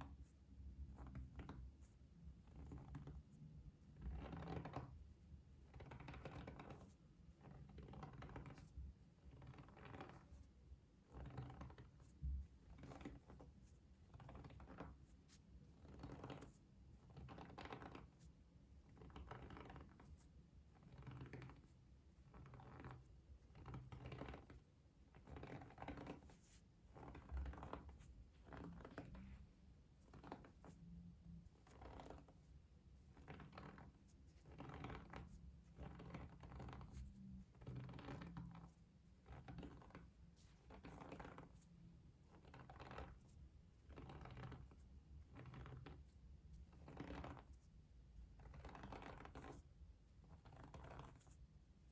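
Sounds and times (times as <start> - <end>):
soft scratchy strokes: 5.8 - 49.7, 50.3 - 51.5.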